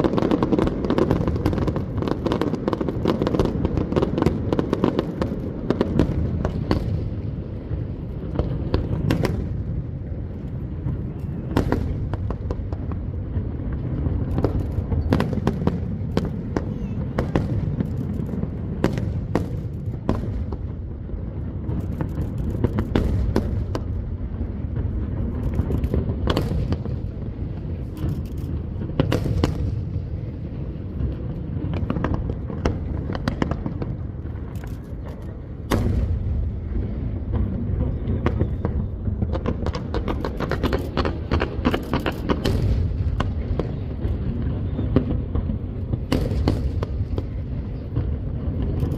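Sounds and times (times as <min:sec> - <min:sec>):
fireworks bursts rumbling: 0:00.0 - 0:48.9
fireworks cracks and bangs: 0:00.0 - 0:48.9.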